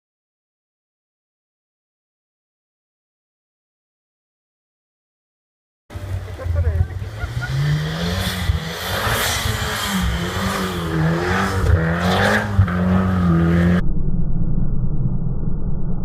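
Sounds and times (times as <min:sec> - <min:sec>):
car engine revving: 0:05.9 - 0:13.8.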